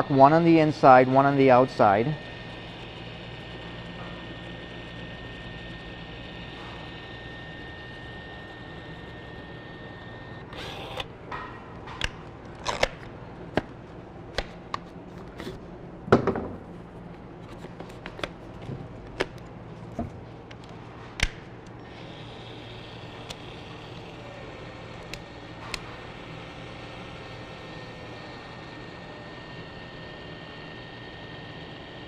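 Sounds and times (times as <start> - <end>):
caulk gun motor whining: 0.0 - 11.2, 11.9 - 13.7, 14.3 - 15.6, 21.2 - 32.0.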